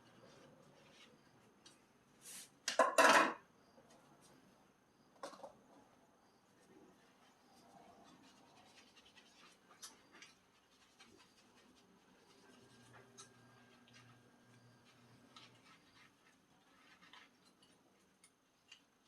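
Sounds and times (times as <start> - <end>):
faint low hum: 3.4 - 19.0
light scratching: 6.6 - 18.9.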